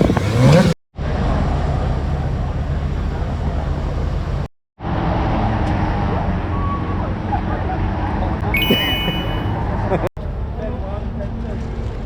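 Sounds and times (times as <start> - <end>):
road and wind noise: 0.0 - 7.9.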